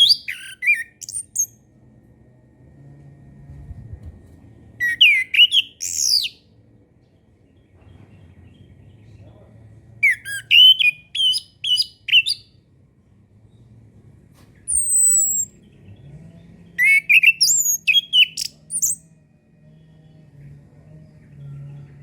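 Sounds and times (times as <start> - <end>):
thrush singing whistled notes: 0.0 - 1.6, 4.8 - 6.4, 10.0 - 12.4, 14.7 - 15.6, 16.8 - 19.0.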